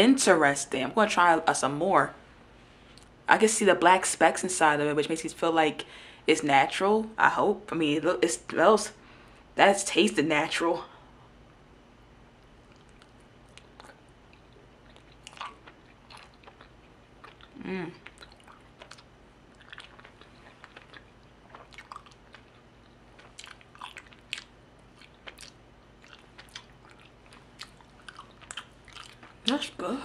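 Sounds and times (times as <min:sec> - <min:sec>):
chewing honeycomb mouth sounds: 0:12.6 - 0:29.8
person humming: 0:17.6 - 0:18.0.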